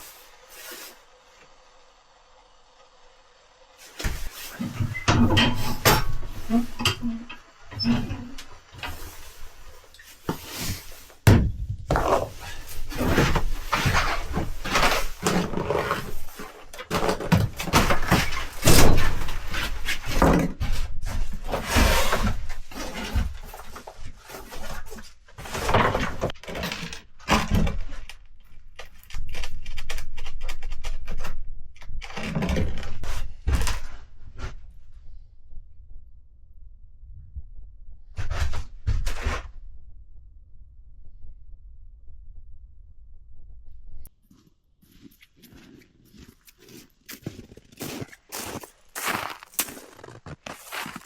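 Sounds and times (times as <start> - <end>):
thuds and knocks of objects: 3.9 - 7.2, 10.2 - 26.7.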